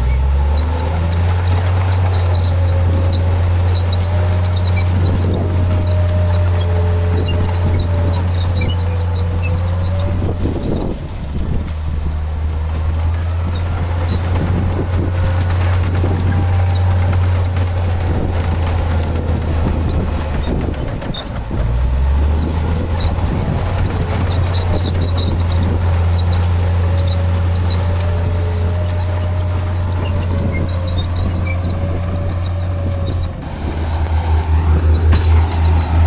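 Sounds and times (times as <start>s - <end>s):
heavy diesel engine running: 0.0s - 36.0s.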